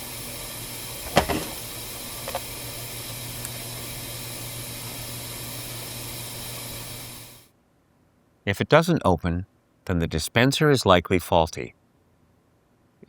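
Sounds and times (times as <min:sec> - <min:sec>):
dishwasher low hum: 0:00.0 - 0:07.4.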